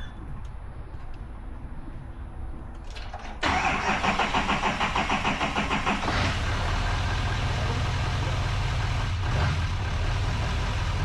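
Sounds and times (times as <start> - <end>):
diesel engine cranking: 2.9 - 11.0
diesel engine idling: 3.4 - 11.0.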